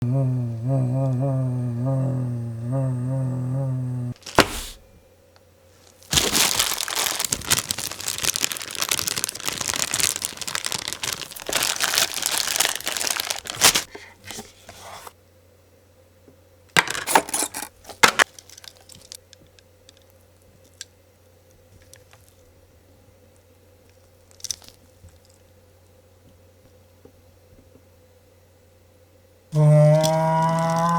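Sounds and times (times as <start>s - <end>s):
low wavering drone: 0.0s - 4.2s, 29.6s - 30.9s
plastic packaging crinkling: 4.2s - 4.8s, 5.8s - 14.4s, 17.9s - 19.2s.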